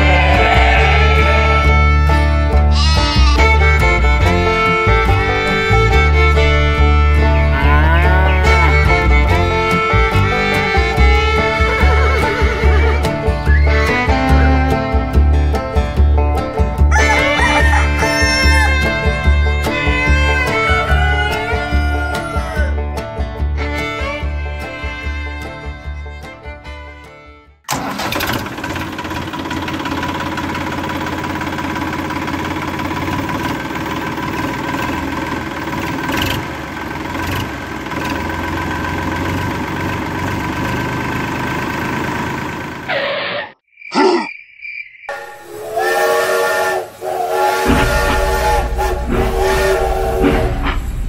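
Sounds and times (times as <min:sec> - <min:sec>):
low hum: 0:00.0 - 0:10.5, 0:46.9 - 0:51.0
toy train electronic whistle: 0:45.1 - 0:50.7.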